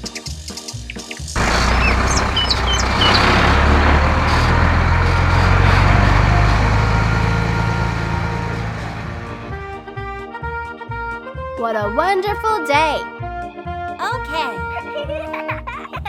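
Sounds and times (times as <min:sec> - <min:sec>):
bird chirps: 0:01.4 - 0:04.6
cartoon truck engine rumble: 0:01.4 - 0:09.9.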